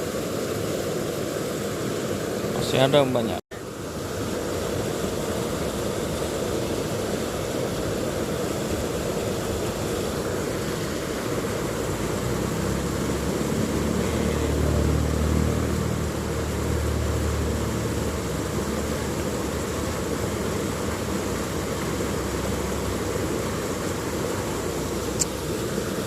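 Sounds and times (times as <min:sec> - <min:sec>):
rushing outdoor noise: 0:00.0 - 0:26.0
motor passing by: 0:10.2 - 0:25.8.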